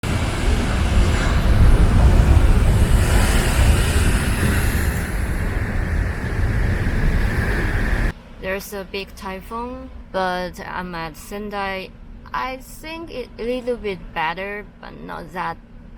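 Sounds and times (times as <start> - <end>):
strong wind buffeting microphone: 0.0 - 8.1.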